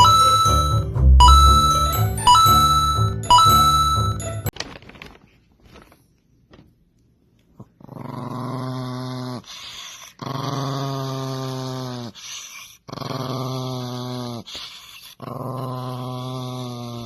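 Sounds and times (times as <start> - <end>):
chiming jingle: 0.0 - 4.5
dog growling: 7.6 - 17.0.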